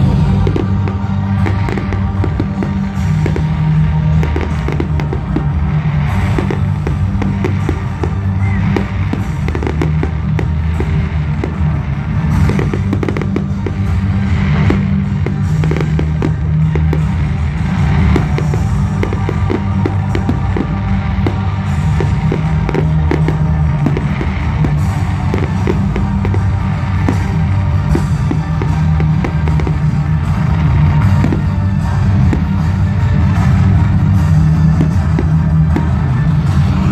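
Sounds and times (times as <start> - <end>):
fireworks bangs and crackles: 0.0 - 36.9
loud music with heavy bass: 0.0 - 36.9.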